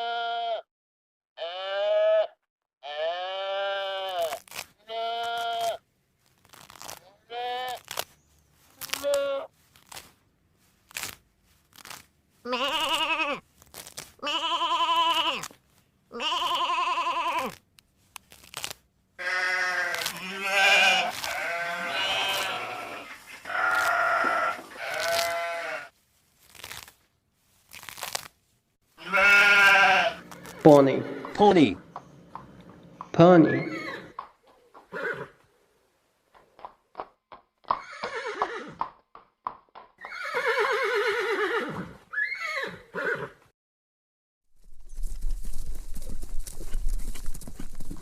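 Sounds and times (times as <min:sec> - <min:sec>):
sheep bleating: 0:00.0 - 0:00.7, 0:01.4 - 0:05.8, 0:12.5 - 0:13.4, 0:14.2 - 0:15.5, 0:16.1 - 0:17.6, 0:19.2 - 0:25.9, 0:29.0 - 0:31.8, 0:33.4 - 0:34.2.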